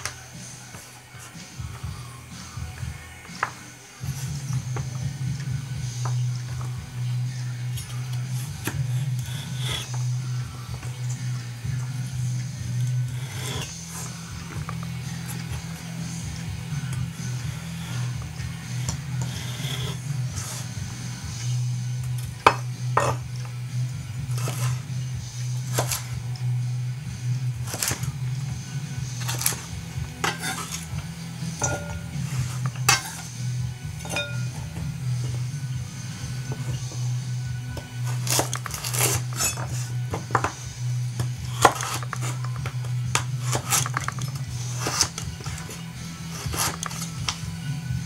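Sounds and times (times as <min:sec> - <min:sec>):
knife blade scraping and clinking: 0:07.8 - 0:10.1, 0:12.7 - 0:15.5, 0:17.0 - 0:20.8, 0:22.1 - 0:23.3, 0:24.3 - 0:24.8, 0:29.2 - 0:34.8, 0:38.0 - 0:40.5, 0:41.2 - 0:47.4.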